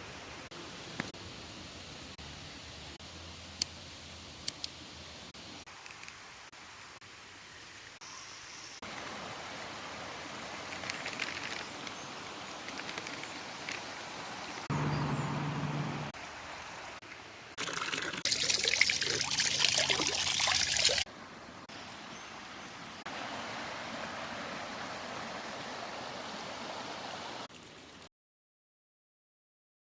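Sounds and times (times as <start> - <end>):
water trickling and pouring: 16.1 - 21.1.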